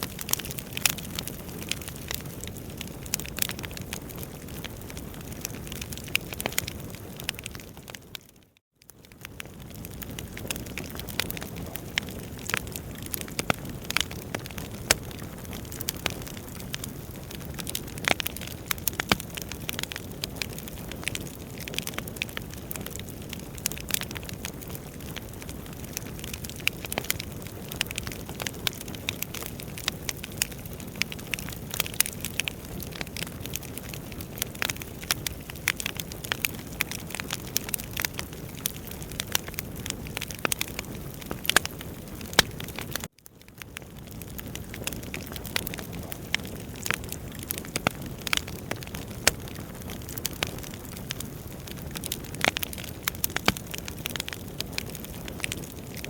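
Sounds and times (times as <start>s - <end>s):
fire crackling and popping: 0.0s - 56.0s.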